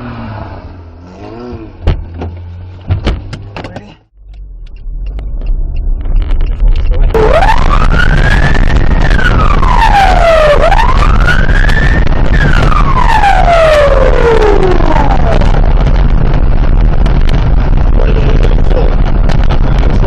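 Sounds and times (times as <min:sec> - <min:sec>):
road and engine rumble: 0:00.0 - 0:20.0
emergency siren wailing: 0:06.9 - 0:15.8.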